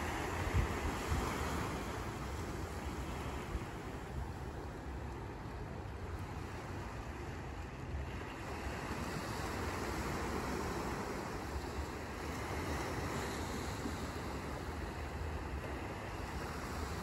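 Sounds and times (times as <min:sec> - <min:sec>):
sea surf washing onto beach: 0:00.0 - 0:07.2.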